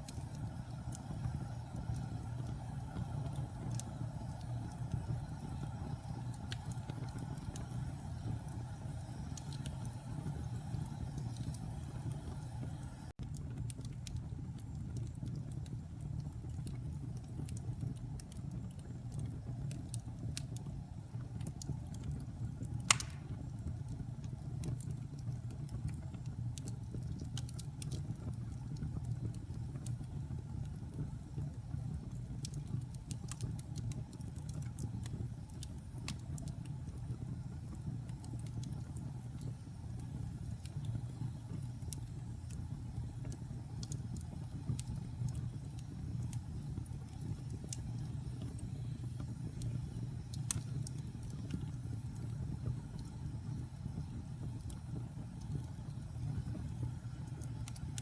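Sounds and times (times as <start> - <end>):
fire crackling: 0.0 - 58.0
fire flames rumbling: 0.0 - 58.0
loud sharp pop: 22.9 - 23.3.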